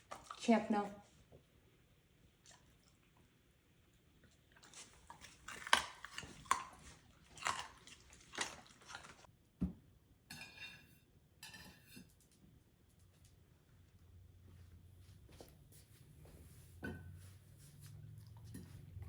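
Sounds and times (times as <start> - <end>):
dog chewing crunchy food: 4.5 - 9.3.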